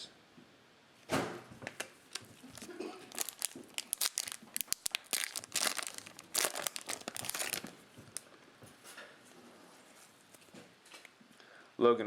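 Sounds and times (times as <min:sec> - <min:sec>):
cellophane wrapper crinkling: 0:01.7 - 0:08.3.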